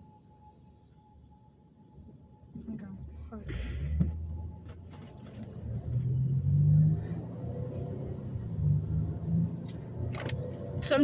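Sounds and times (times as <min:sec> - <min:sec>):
road noise: 0:02.0 - 0:11.0
car engine revving and droning: 0:03.6 - 0:11.0.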